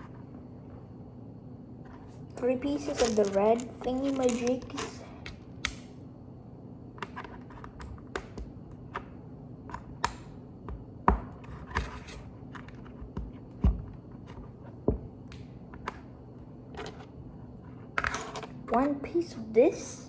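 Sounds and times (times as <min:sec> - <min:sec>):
plastic pieces knocking: 0:02.6 - 0:05.3
plastic pieces clicking together: 0:02.8 - 0:05.9.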